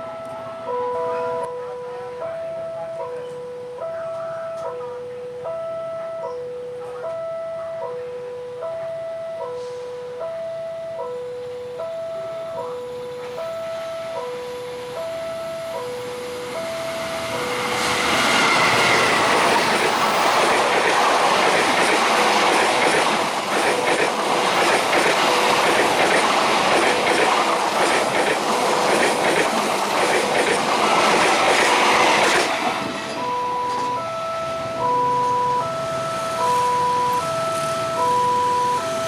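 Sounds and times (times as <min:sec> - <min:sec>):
two-tone crossing warning bell: 0:00.0 - 0:39.0
train wheels clattering: 0:13.3 - 0:38.1.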